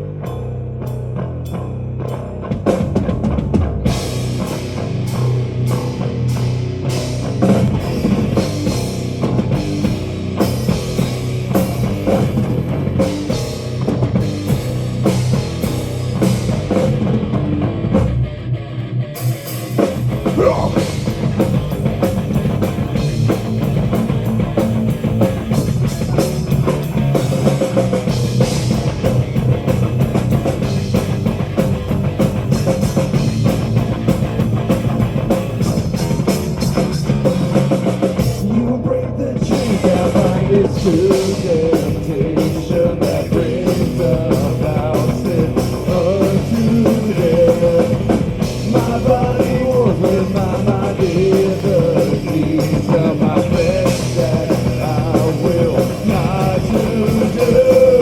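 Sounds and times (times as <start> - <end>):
bass guitar: 0.0 - 58.0
drum kit: 0.0 - 58.0
guitars: 0.0 - 58.0.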